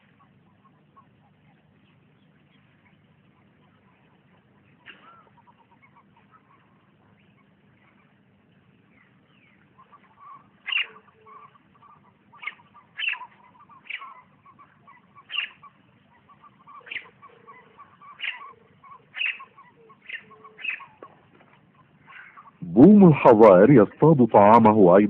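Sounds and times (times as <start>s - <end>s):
short sharp bird calls: 4.8s - 8.2s, 8.9s - 23.2s.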